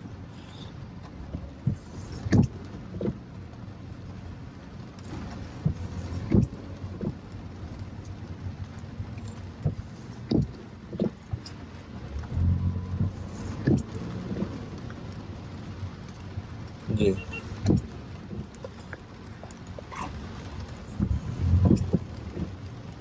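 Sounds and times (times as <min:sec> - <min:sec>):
car running with road noise: 0:00.0 - 0:23.0
short low thumps: 0:12.2 - 0:13.9.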